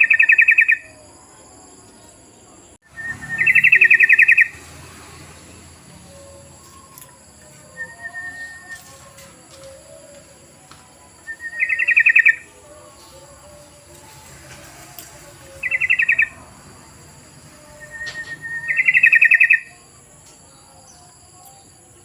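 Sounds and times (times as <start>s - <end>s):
bird chattering calls: 3.0s - 4.6s.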